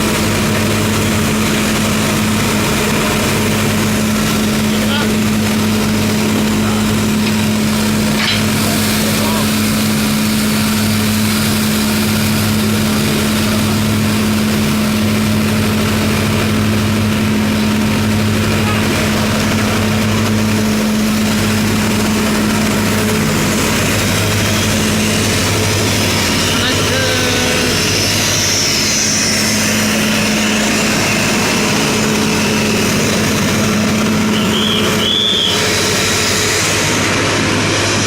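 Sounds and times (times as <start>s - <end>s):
steam locomotive mechanical hum: 0.0s - 38.0s.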